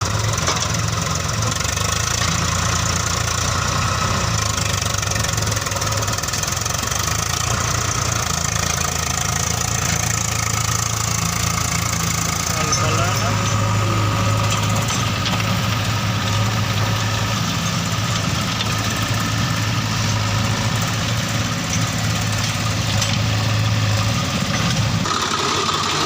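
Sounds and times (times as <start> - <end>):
diesel engine idling with clatter: 0.0 - 26.0.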